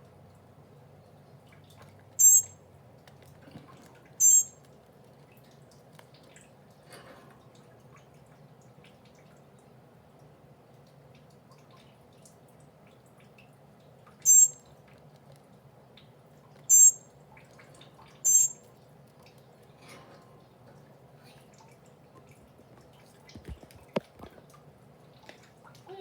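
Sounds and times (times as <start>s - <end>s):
baby bird shrill calls: 2.2s - 2.6s, 4.2s - 4.6s, 14.3s - 14.6s, 16.7s - 17.0s, 18.2s - 18.6s.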